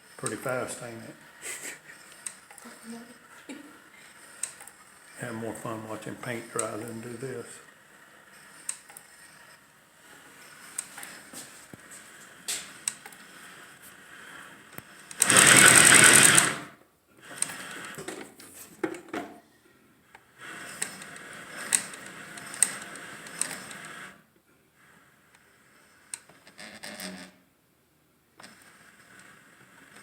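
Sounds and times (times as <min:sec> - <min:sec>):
sewing machine stitching: 0:00.0 - 0:11.7, 0:14.8 - 0:18.2, 0:20.5 - 0:24.2, 0:28.4 - 0:30.0
clicks: 0:04.1 - 0:05.0, 0:06.2 - 0:07.2, 0:08.4 - 0:09.6.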